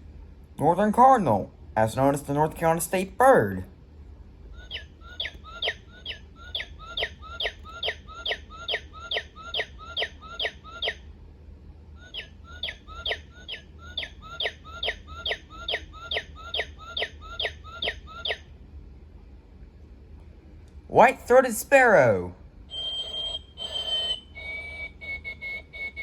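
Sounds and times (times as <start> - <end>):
recorded bird song whistles: 4.5 - 11.1, 12.0 - 18.5, 22.7 - 26.0.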